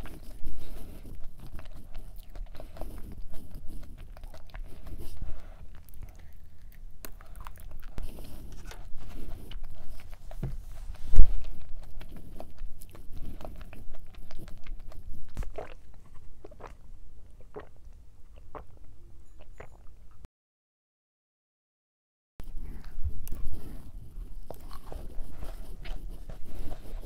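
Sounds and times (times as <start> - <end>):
cookie chewing crunches: 0.0 - 18.8, 22.6 - 27.0
wet mouth clicks: 17.4 - 18.8.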